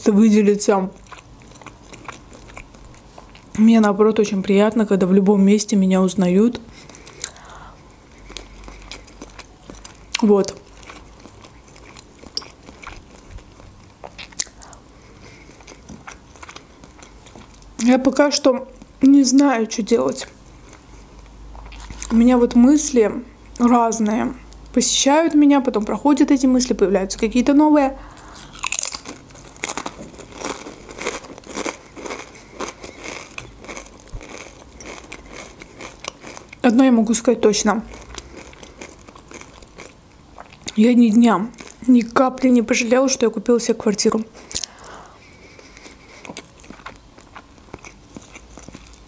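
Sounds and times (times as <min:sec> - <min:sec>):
close chewing: 0:00.9 - 0:03.6, 0:06.8 - 0:17.7, 0:28.2 - 0:36.6, 0:37.7 - 0:40.8, 0:44.4 - 0:49.0.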